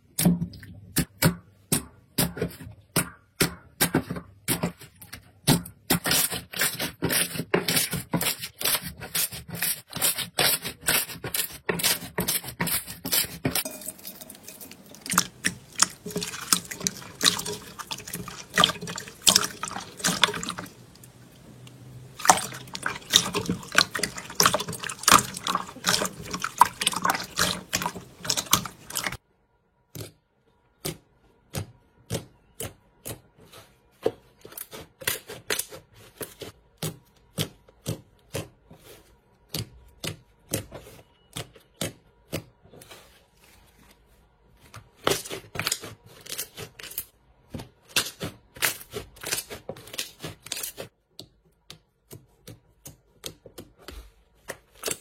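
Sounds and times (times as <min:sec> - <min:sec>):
running water: 0:13.7 - 0:29.2.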